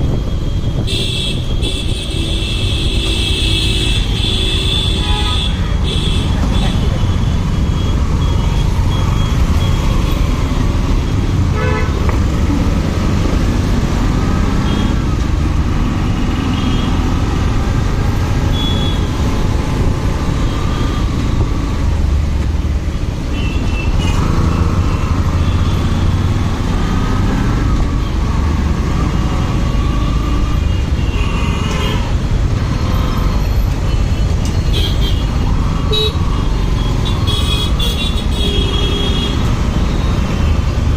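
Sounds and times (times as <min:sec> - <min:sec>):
vehicle horns honking: 0:11.5 - 0:12.1.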